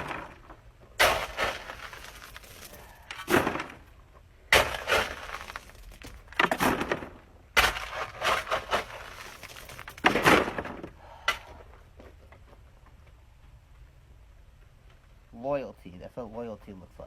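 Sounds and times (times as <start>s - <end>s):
gravel scattering: 0.0s - 11.6s
shovel crunching into gravel: 1.0s - 3.8s, 4.5s - 10.7s.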